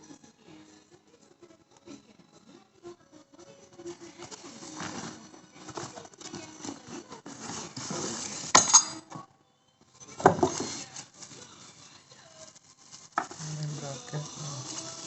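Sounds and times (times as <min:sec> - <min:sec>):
hard parts clinking: 0:08.5 - 0:09.1
packaging rustling: 0:12.6 - 0:15.0.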